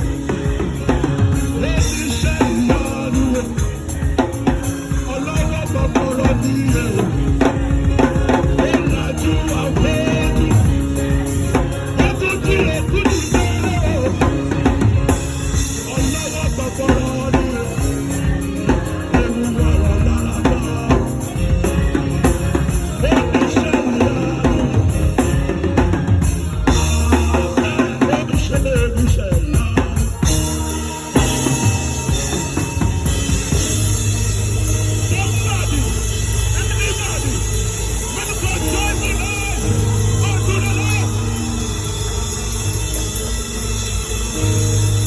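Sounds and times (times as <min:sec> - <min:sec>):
drum kit with snare and rimshots: 0:00.0 - 0:45.0
live band playing: 0:00.0 - 0:45.0.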